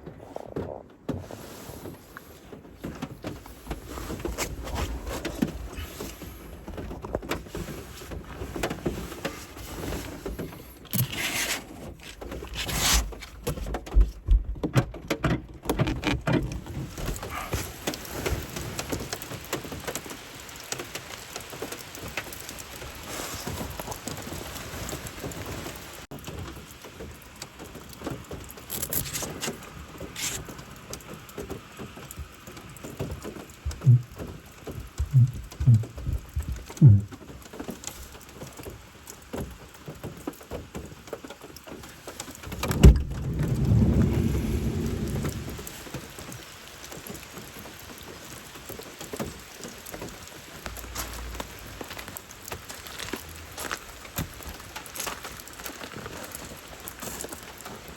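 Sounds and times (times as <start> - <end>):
rain falling: 1.0 - 57.9
rustling knocks: 33.3 - 37.4, 42.1 - 46.0.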